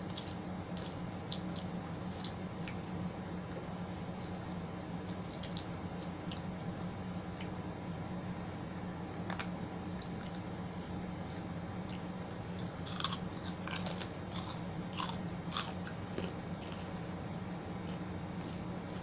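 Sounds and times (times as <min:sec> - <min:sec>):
person chewing food: 0:00.0 - 0:06.5, 0:09.1 - 0:19.0
steady low hum: 0:00.0 - 0:19.0
sharp crunches: 0:12.8 - 0:16.8.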